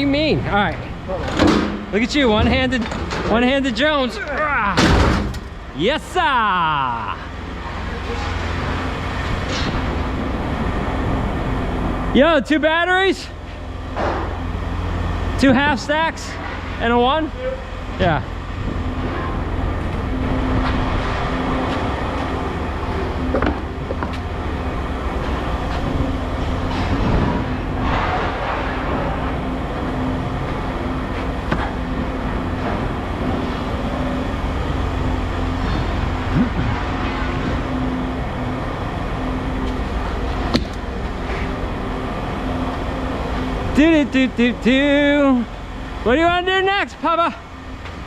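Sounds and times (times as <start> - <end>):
large engine rumbling: 0.0 - 48.0
short metal knocks: 4.8 - 5.8.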